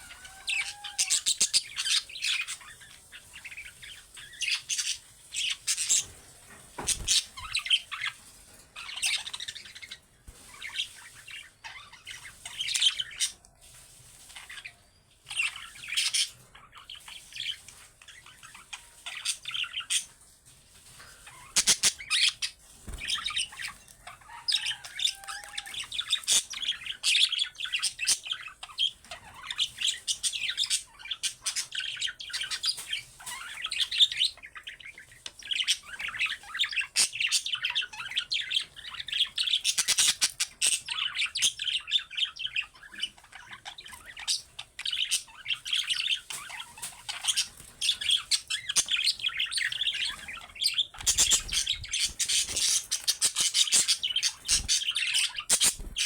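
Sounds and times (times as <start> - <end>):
budgerigars chattering: 21.4 - 34.7, 35.4 - 56.0.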